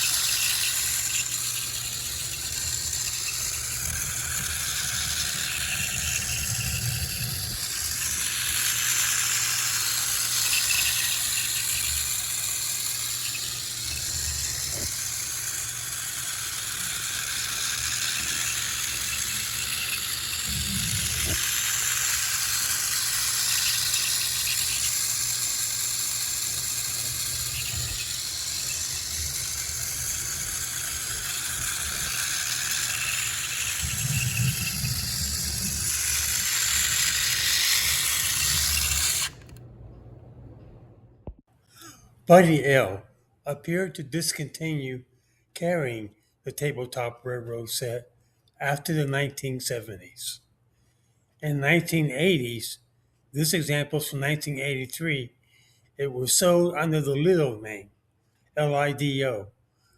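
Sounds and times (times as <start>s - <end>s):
toy train whirring rattle: 0.0s - 39.6s.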